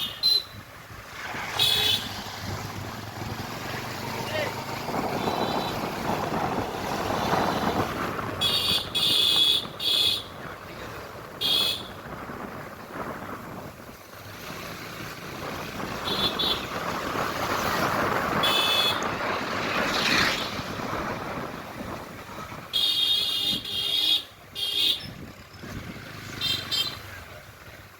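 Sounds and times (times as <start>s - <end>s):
vehicle horn beeps: 0.0s - 0.6s, 5.2s - 5.8s, 18.4s - 19.1s, 22.8s - 25.2s, 26.4s - 27.1s
road traffic noise: 0.0s - 27.9s
wind on microphone: 4.6s - 9.9s, 10.5s - 23.9s.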